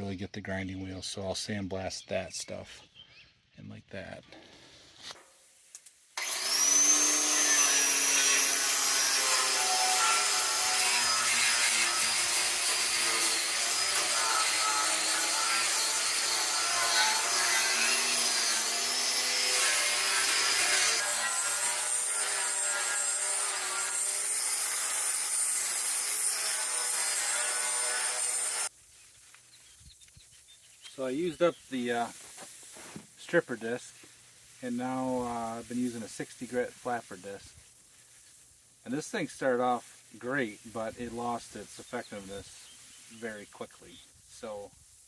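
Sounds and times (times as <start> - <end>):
angle grinder grinding metal: 6.2 - 28.7, 30.9 - 37.5.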